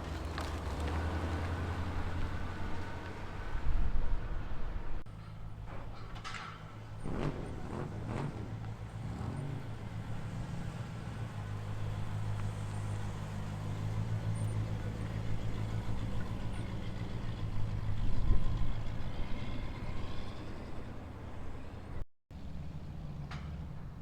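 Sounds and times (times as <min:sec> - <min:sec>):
muscle car exhaust: 0:06.8 - 0:21.7.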